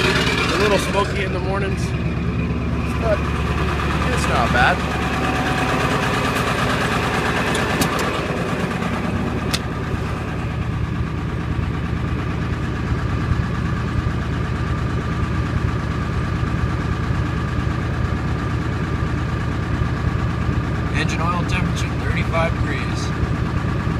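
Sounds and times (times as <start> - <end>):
diesel engine idling: 0.0 - 23.9.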